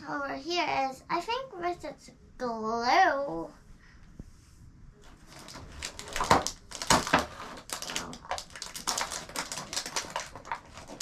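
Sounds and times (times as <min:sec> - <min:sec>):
plastic packaging crinkling: 0:05.0 - 0:11.0.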